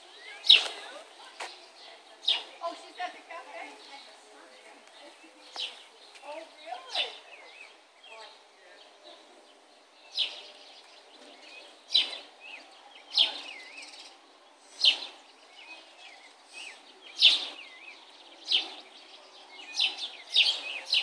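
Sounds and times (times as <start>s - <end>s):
soft bird twittering: 0.0s - 3.0s, 3.6s - 21.0s
loud sharp bird chirp: 0.1s - 0.8s, 10.1s - 21.0s.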